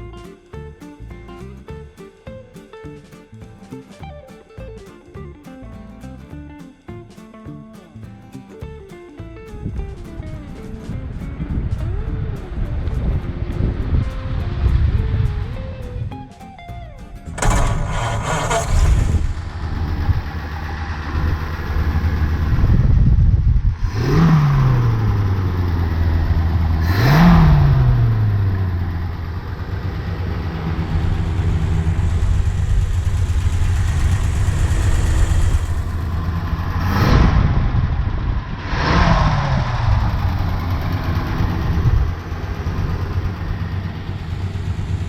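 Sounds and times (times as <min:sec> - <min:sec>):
car engine idling with throttle blips: 0:17.4 - 0:23.1, 0:23.8 - 0:37.2, 0:39.4 - 0:45.0.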